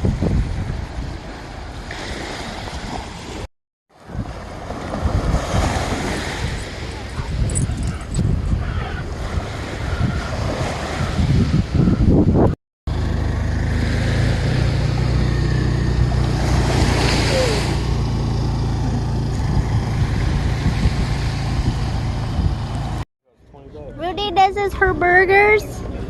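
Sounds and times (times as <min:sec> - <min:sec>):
wind buffeting microphone: 0:00.0 - 0:03.2, 0:04.0 - 0:12.6, 0:14.5 - 0:23.0.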